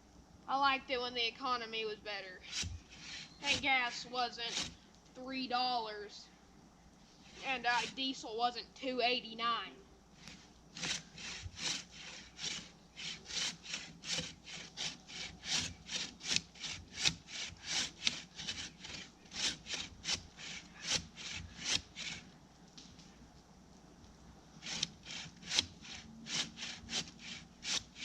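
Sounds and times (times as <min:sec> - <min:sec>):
bow saw cutting wood: 0:02.4 - 0:04.8, 0:07.2 - 0:08.1, 0:10.2 - 0:22.4, 0:24.6 - 0:28.0.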